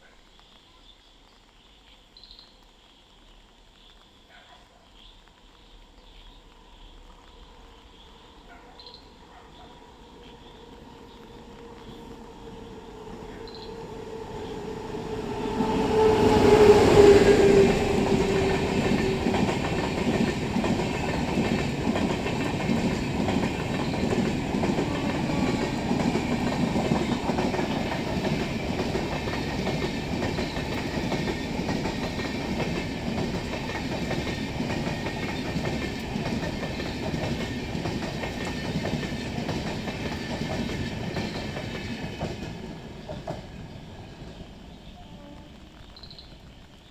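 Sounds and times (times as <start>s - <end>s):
train horn: 10.3s - 21.6s, 23.3s - 28.6s, 44.8s - 45.8s.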